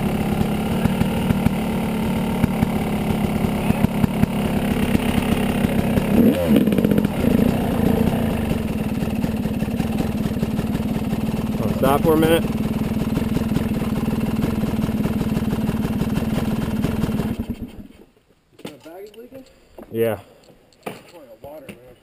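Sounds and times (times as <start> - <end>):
dirt bike engine running: 0.0 - 17.9.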